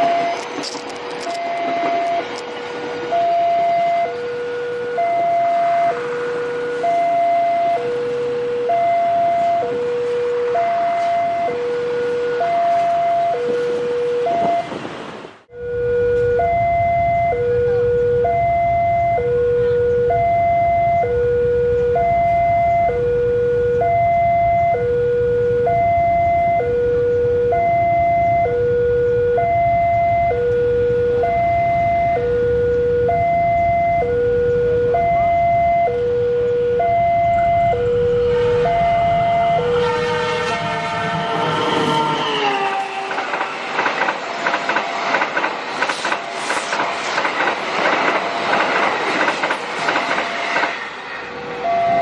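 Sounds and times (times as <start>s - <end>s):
train wheels rattling and squealing: 0.0s - 4.0s, 41.2s - 52.0s
traffic rumble: 0.0s - 52.0s.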